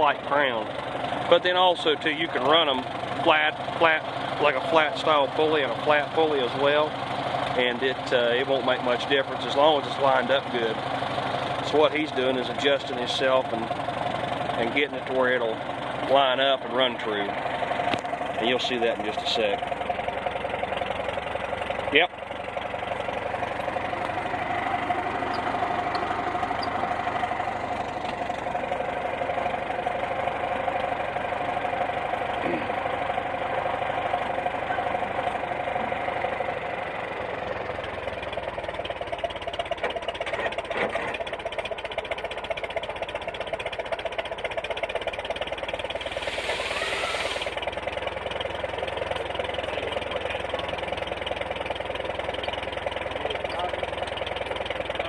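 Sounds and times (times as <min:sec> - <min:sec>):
tractor engine idling: 0:00.0 - 0:55.0
brief hiss: 0:46.1 - 0:47.5.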